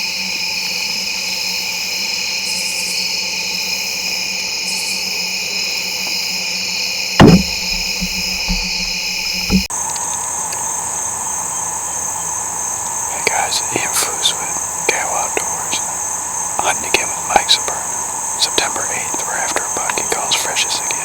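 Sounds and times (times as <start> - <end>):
crickets chirping: 0.0 - 21.0
sharp knocks: 7.2 - 9.7.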